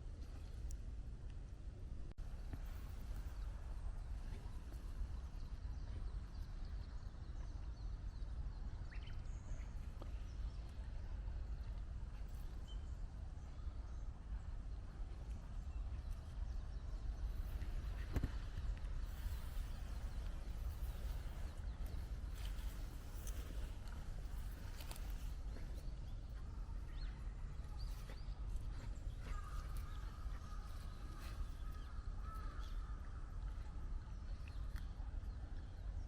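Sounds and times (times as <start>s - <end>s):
low wind rumble on microphone: 0.0s - 36.0s
footsteps on forest floor: 18.2s - 27.0s, 27.6s - 31.8s.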